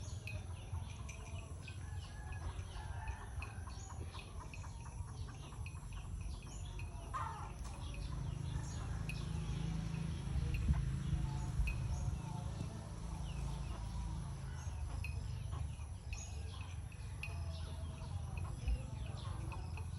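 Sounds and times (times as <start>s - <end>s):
birds chirping: 0.0s - 19.9s
steady low rumble: 4.0s - 19.9s.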